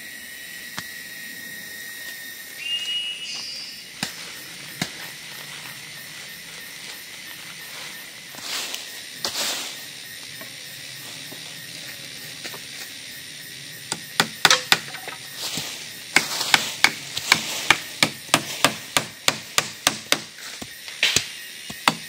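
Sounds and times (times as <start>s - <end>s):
tool knocking on wood: 14.2s - 15.2s.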